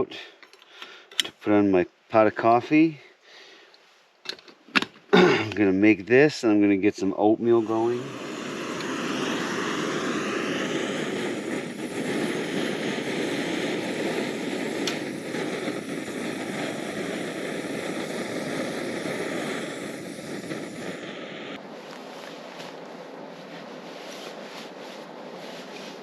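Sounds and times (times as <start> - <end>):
gas stove burner hissing: 5.4 - 26.0.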